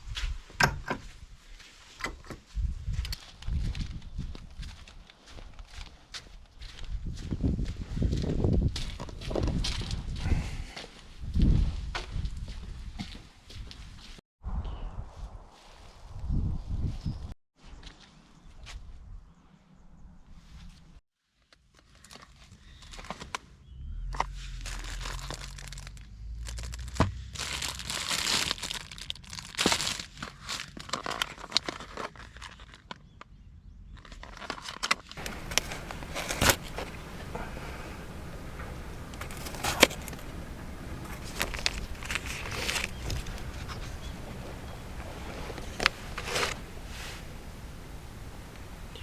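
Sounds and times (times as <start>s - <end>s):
plastic crinkling and rustling: 24.6s - 33.1s, 34.0s - 49.0s
steady rushing hiss: 35.2s - 49.0s.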